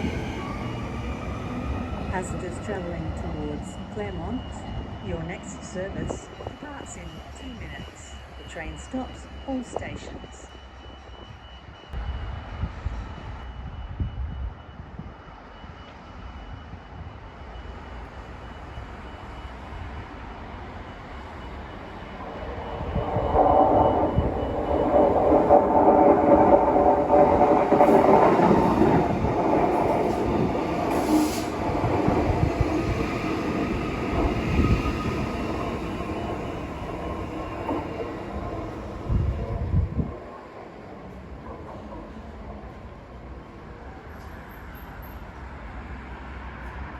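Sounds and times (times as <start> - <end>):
train rumbling: 0.0 - 46.9
train whine: 0.0 - 46.9.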